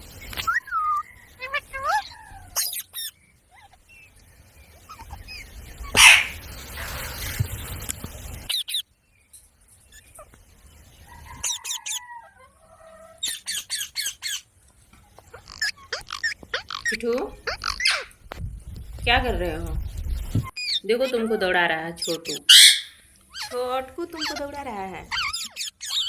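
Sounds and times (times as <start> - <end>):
parakeets squawking: 0.5 - 3.8, 4.8 - 7.2, 11.4 - 12.1, 13.2 - 14.5, 15.2 - 18.2, 20.5 - 26.0.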